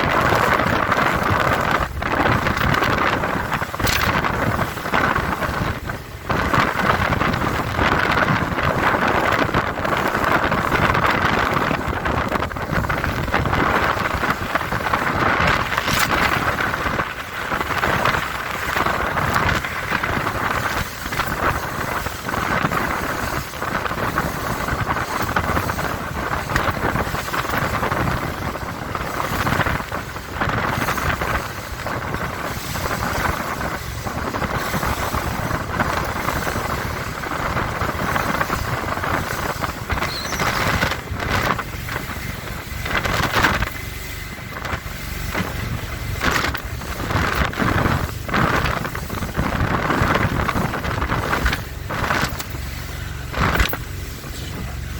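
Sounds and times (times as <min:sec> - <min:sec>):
powerboat engine: 0:00.0 - 0:54.9
rushing water: 0:00.0 - 0:54.9
wind buffeting microphone: 0:00.0 - 0:54.9.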